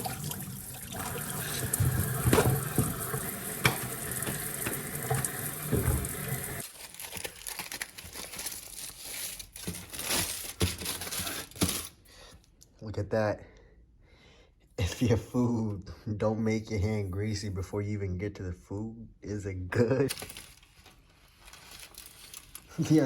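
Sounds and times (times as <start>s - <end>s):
paper wrapping crinkling and tearing: 6.6s - 12.0s, 20.0s - 23.0s.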